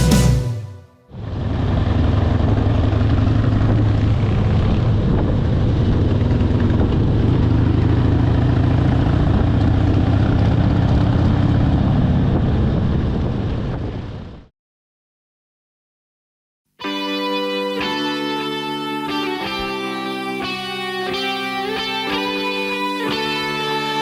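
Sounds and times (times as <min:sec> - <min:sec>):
motorcycle engine cruising: 0:01.1 - 0:13.6
rushing wind noise: 0:03.6 - 0:07.6, 0:11.2 - 0:14.5.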